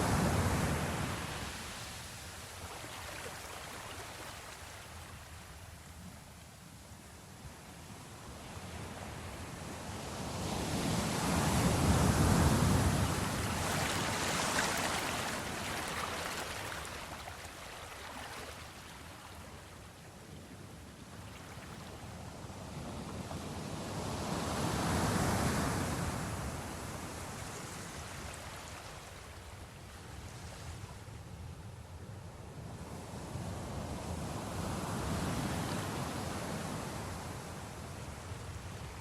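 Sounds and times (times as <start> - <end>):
ocean waves breaking: 11.2 - 19.5.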